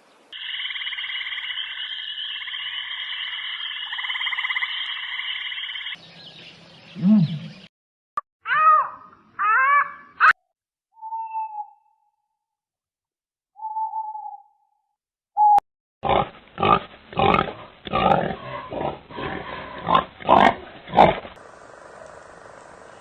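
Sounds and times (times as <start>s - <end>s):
rough animal calls: 16.0s - 21.4s
steady hiss: 21.4s - 23.0s.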